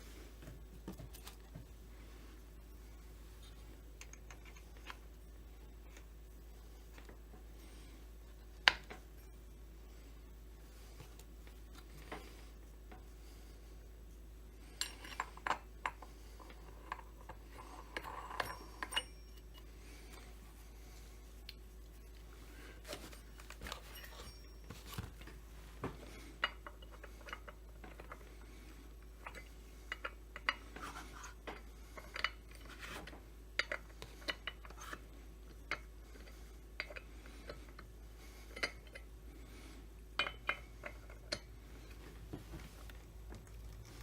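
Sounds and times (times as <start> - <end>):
small metal parts clinking: 14.7 - 20.3, 23.4 - 25.4.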